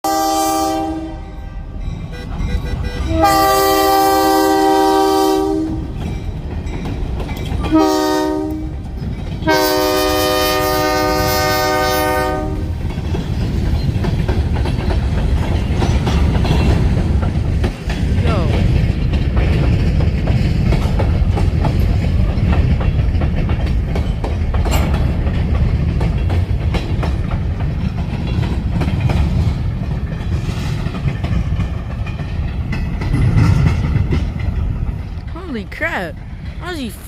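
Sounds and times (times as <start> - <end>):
locomotive horn blasts: 0.0 - 5.9, 7.7 - 8.7, 9.4 - 12.7
train rumble and wheel clatter: 0.0 - 37.0.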